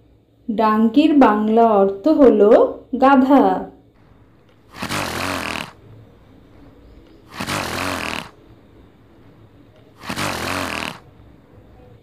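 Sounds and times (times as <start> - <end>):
donkey braying: 4.6 - 5.8, 7.1 - 8.4, 10.0 - 11.0.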